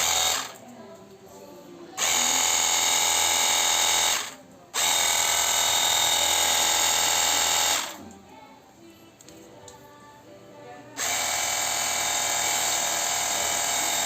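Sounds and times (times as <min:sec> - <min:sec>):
pressure washer motor whining: 0:00.0 - 0:00.6, 0:02.0 - 0:08.0, 0:11.0 - 0:14.0.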